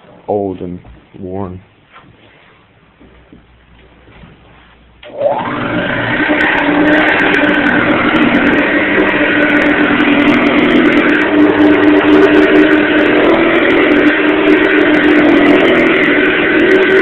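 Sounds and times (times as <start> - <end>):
vacuum cleaner motor whining: 5.0 - 17.0.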